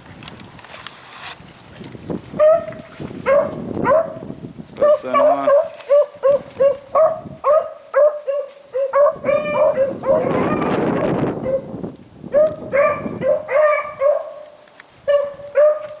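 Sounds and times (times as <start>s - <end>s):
dogs barking: 2.4s - 11.7s, 12.3s - 16.0s.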